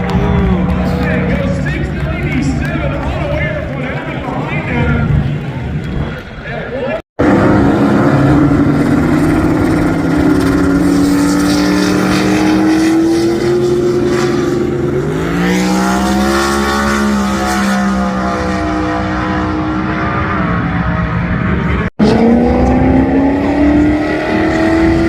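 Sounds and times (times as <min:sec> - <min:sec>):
car engine under load: 0:07.2 - 0:20.9.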